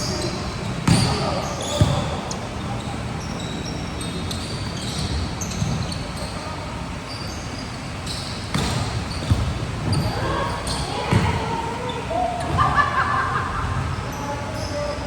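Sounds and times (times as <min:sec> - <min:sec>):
players' voices: 0:00.0 - 0:15.0
sneakers squeaking on court: 0:00.0 - 0:15.0
volleyball impacts: 0:08.5 - 0:11.5.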